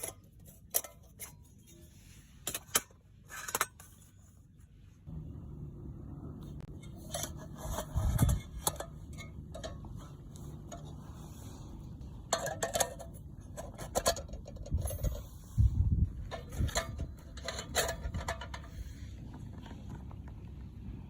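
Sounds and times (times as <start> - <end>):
metal camp stove clicks and clinks: 0.0 - 1.8, 2.4 - 4.0, 6.8 - 11.0, 12.2 - 15.3, 16.2 - 18.8
steady low hum: 0.0 - 21.0.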